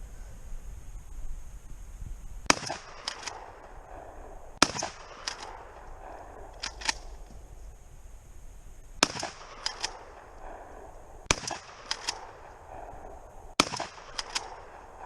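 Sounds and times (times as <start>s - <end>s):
shotgun blasts: 2.4s - 7.5s, 9.0s - 15.0s
sharp cracks: 2.4s - 8.1s, 8.8s - 15.0s.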